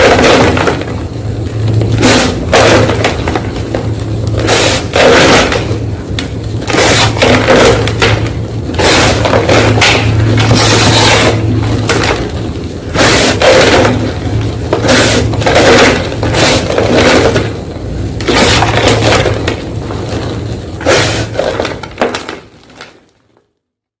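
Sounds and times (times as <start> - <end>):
steady low hum: 0.0 - 23.1
chalk crunching: 1.8 - 5.8, 6.6 - 12.3, 12.9 - 17.6, 18.2 - 21.6.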